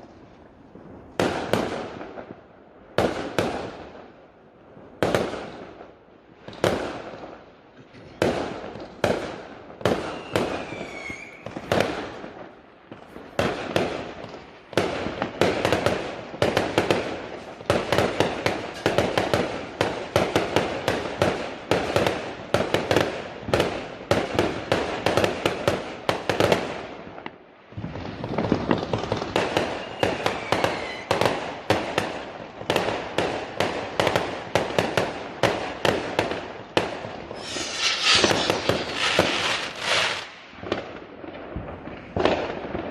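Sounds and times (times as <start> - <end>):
fireworks bangs and crackles: 0.0 - 42.9
falling firework whistle: 9.9 - 11.8, 29.6 - 31.2, 37.2 - 40.4.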